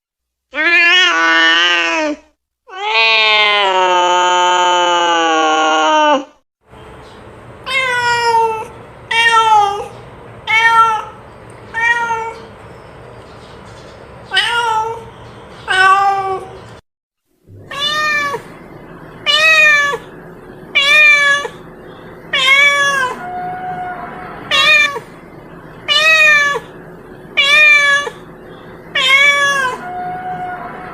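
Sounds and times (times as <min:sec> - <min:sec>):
cat meowing: 0:00.6 - 0:06.2, 0:07.7 - 0:09.9, 0:10.5 - 0:12.5, 0:14.3 - 0:15.1, 0:15.7 - 0:16.5, 0:17.6 - 0:18.5, 0:19.2 - 0:20.1, 0:20.7 - 0:21.6, 0:22.3 - 0:25.1, 0:25.9 - 0:26.8, 0:27.4 - 0:28.3, 0:28.9 - 0:30.9.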